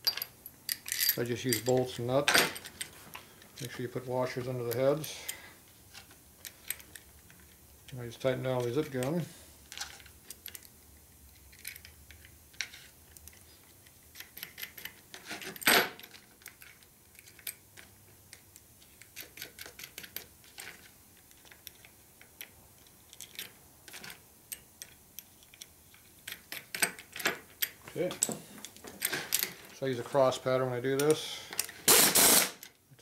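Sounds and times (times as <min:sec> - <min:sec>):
steel bolts and nuts clinking: 0:00.0 - 0:02.9.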